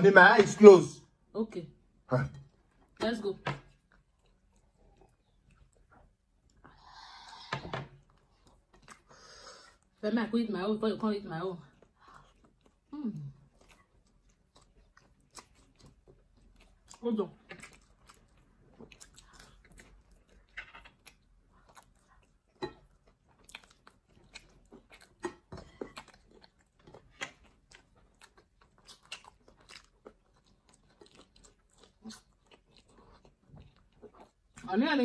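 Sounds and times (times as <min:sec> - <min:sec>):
people chewing pizza: 0:03.6 - 0:10.0, 0:11.0 - 0:35.0.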